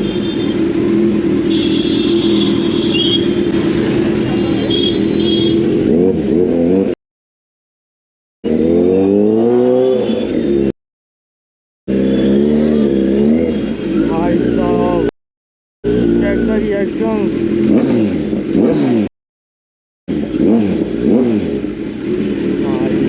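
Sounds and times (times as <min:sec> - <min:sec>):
motorcycle engine revving: 0:00.0 - 0:07.0, 0:08.4 - 0:10.8, 0:11.9 - 0:15.1, 0:15.8 - 0:19.1, 0:20.1 - 0:23.0.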